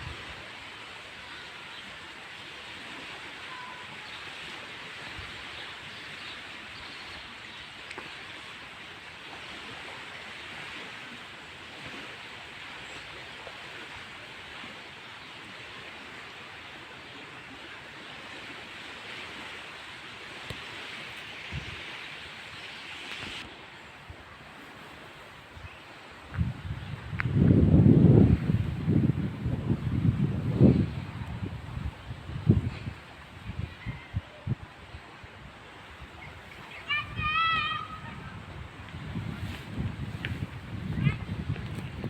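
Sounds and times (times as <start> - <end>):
outdoor rushing hiss: 19.7 - 23.5.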